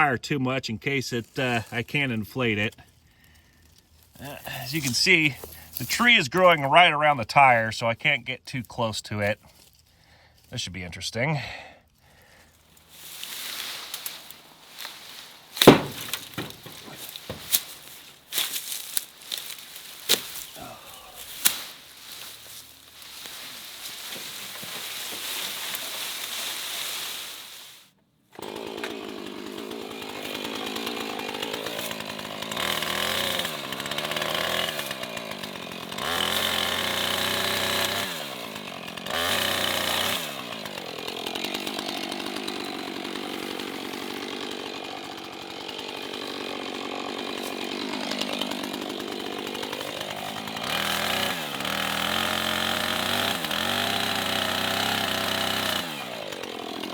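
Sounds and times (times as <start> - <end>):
chainsaw revving and cutting: 1.2 - 3.5, 4.2 - 6.9, 12.2 - 56.9
wood snapping and knocking: 13.1 - 20.6, 21.2 - 26.5.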